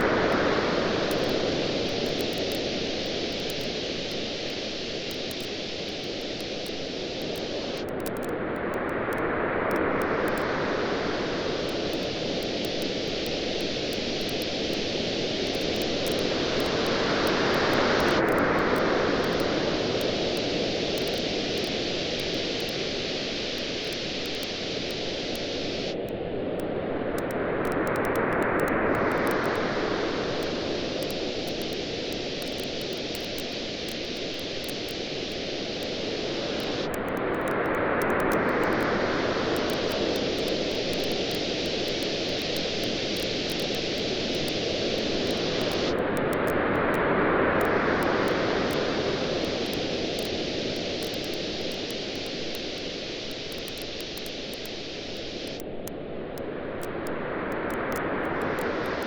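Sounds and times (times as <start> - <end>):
ocean waves washing on beach: 0.0 - 59.0
campfire crackling: 1.1 - 8.2, 11.4 - 26.0, 30.4 - 38.9, 39.6 - 46.0, 48.0 - 55.8.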